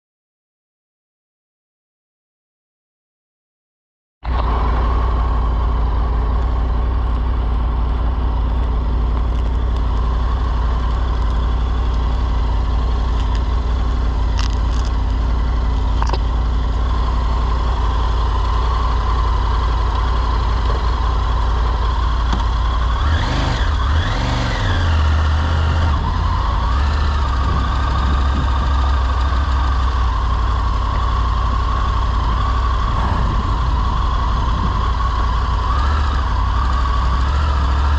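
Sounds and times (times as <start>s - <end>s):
motorcycle engine running: 4.2s - 37.9s.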